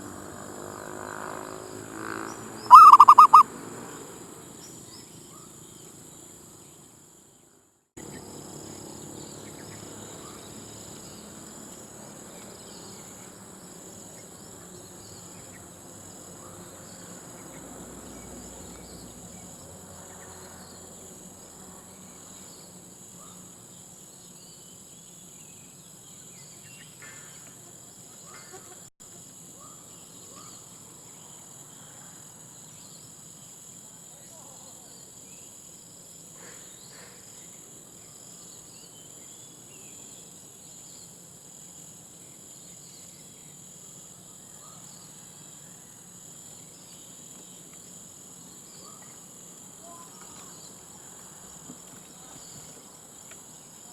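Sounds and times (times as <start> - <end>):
insects chorus: 0.0 - 53.9
outdoor background noise: 0.0 - 53.9
faint chirps: 2.7 - 3.4.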